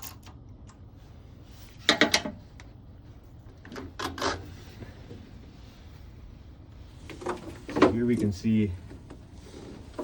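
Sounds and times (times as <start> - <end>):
tool clicking and creaking: 3.6 - 4.5.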